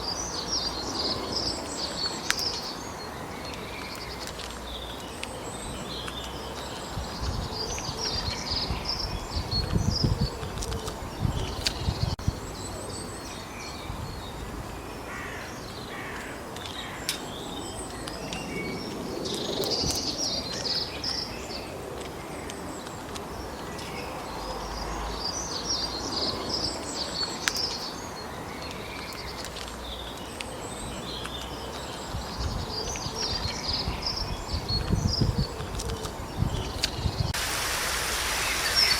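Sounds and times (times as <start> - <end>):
songbirds chirping: 0.0 - 38.9
outdoor hiss: 37.3 - 38.9.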